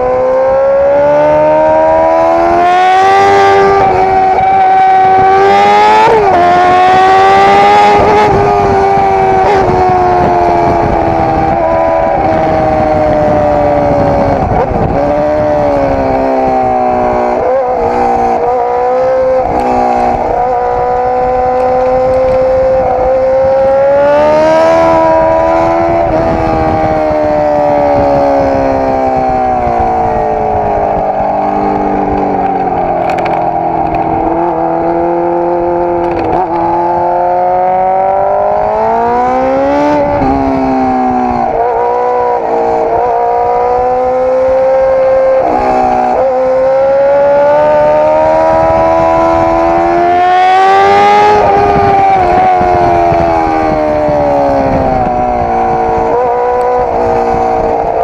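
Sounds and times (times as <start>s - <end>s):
motorcycle engine at high revs: 0.0s - 58.0s
wind rushing: 0.0s - 58.0s.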